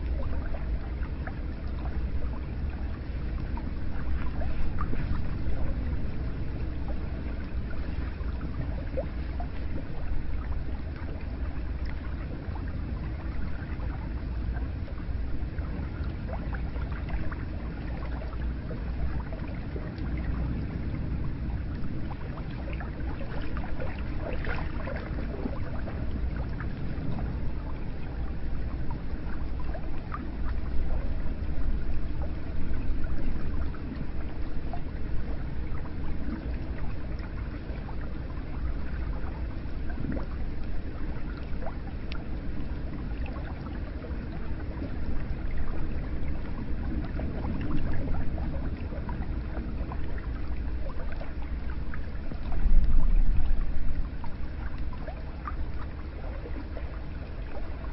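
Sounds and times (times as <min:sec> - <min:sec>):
water flowing and trickling: 0:00.0 - 0:57.9.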